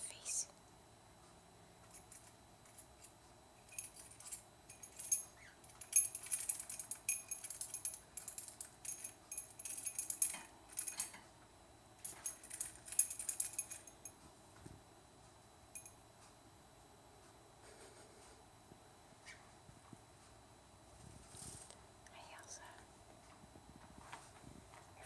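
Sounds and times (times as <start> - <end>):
small metal bell jingling: 1.9 - 11.2, 12.0 - 14.2, 15.8 - 16.0.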